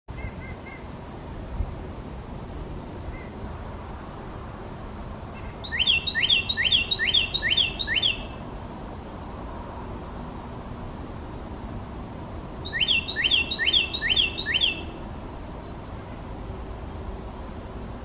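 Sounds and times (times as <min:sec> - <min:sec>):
songbird singing rising phrases: 0:05.2 - 0:08.5, 0:12.6 - 0:15.1, 0:15.8 - 0:17.9
faint short bird chirps: 0:12.6 - 0:14.9.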